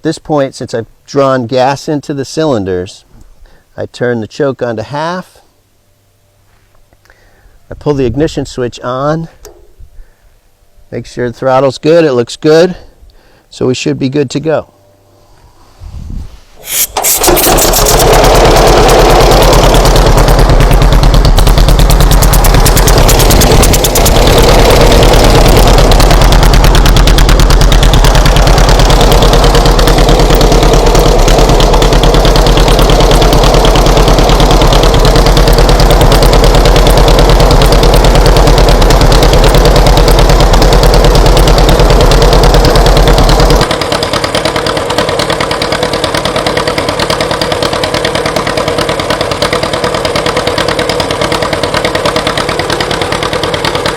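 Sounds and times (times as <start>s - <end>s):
tractor engine exhaust popping: 16.6s - 53.9s.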